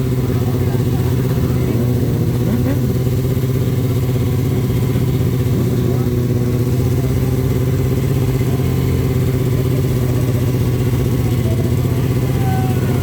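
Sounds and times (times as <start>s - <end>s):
motorcycle engine running steadily: 0.0s - 13.0s.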